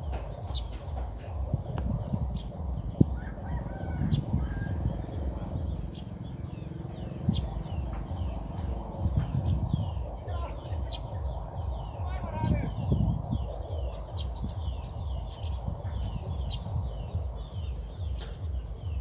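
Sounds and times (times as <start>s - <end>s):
low rumble: 0.0s - 19.0s
small birds chirping: 0.0s - 19.0s.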